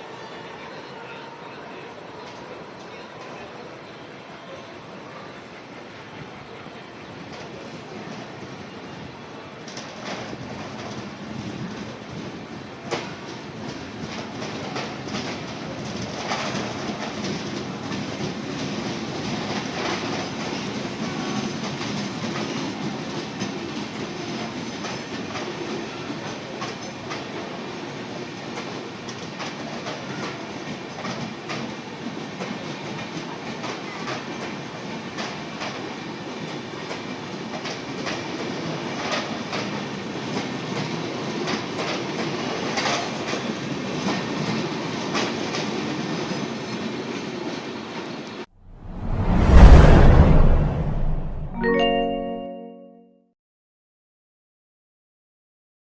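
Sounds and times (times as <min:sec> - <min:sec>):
train wheels clacking on rails: 0:09.7 - 0:27.9
train rumble: 0:48.6 - 0:51.6.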